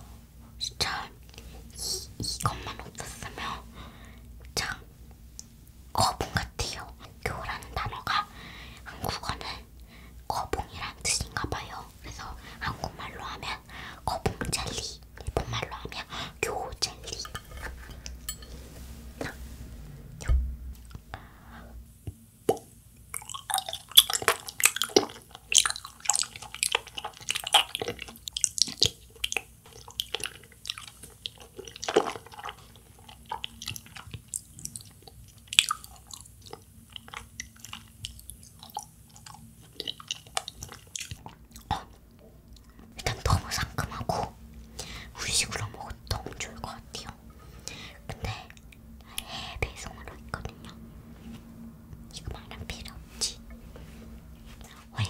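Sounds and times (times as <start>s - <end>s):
chewing jelly: 22.5s - 42.0s.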